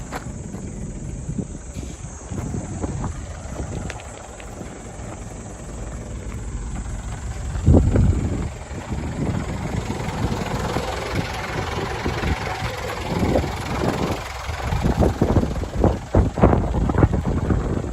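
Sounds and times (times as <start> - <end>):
diesel engine idling: 0.0 - 17.9
wind buffeting microphone: 0.0 - 17.9.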